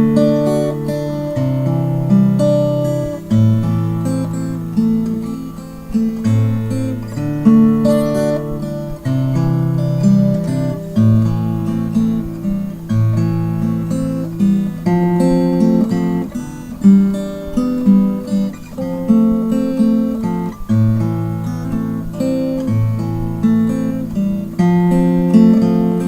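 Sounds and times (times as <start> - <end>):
acoustic guitar chords: 0.0 - 26.0.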